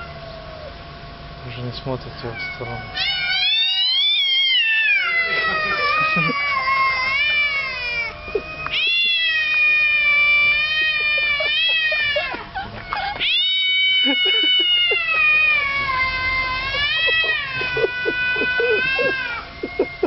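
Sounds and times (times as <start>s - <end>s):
cats yowling: 0.0s - 1.1s, 2.0s - 20.0s.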